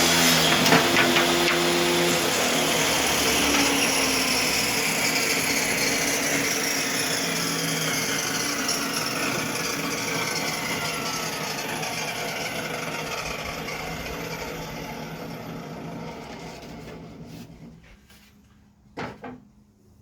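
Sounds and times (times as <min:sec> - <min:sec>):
table saw running: 0:00.0 - 0:17.7.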